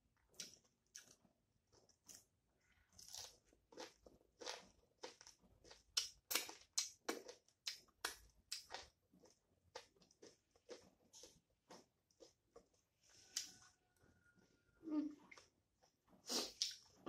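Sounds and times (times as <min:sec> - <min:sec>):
person chewing with mouth clicks: 0:03.0 - 0:13.6.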